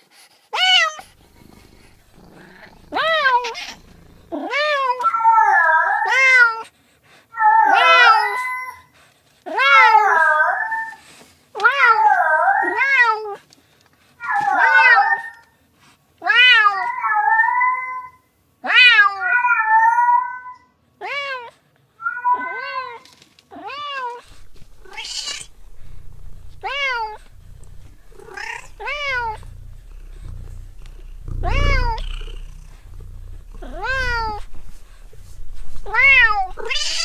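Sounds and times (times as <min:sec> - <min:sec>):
cat meowing: 0:00.6 - 0:06.6, 0:23.6 - 0:37.0
low hum: 0:01.0 - 0:04.4, 0:24.3 - 0:37.0.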